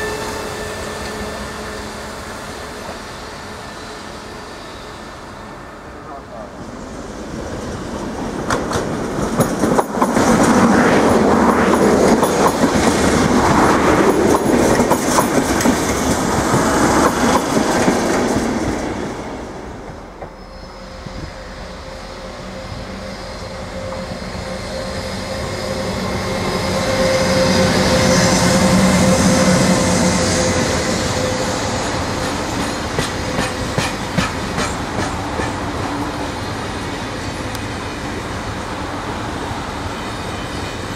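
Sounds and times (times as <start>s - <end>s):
train hum: 0.0s - 40.9s
train wheels clattering: 8.3s - 18.8s, 30.2s - 35.8s.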